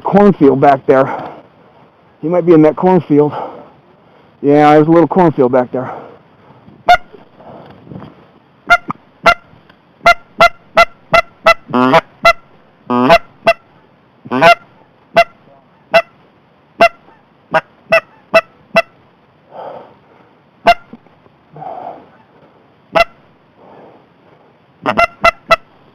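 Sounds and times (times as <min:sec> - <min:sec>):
goose clucking and honking: 0:06.9 - 0:07.2, 0:08.7 - 0:13.7, 0:14.3 - 0:16.2, 0:16.8 - 0:19.0, 0:20.6 - 0:21.0, 0:22.1 - 0:23.2, 0:24.8 - 0:25.7.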